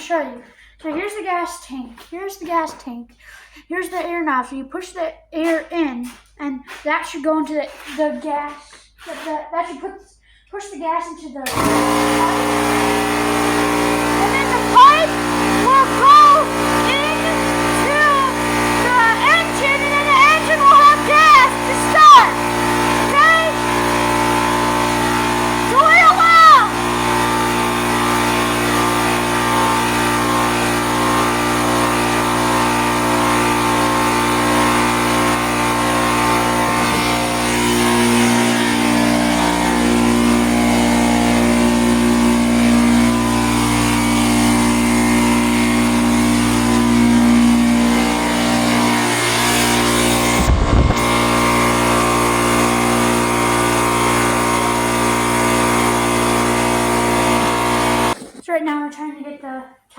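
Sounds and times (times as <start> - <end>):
motor running steadily: 11.5 - 58.2
low swoop: 50.4 - 51.0.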